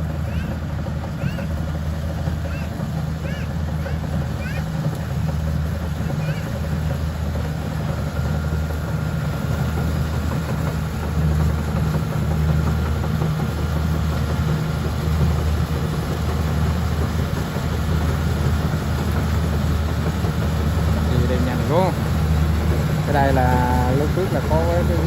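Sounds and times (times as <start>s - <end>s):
combine harvester engine droning: 0.0s - 25.0s.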